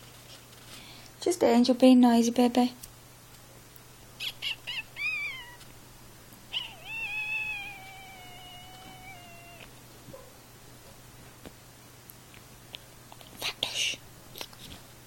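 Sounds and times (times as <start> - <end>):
cat meowing and chirping: 4.2 - 5.7, 6.5 - 9.7.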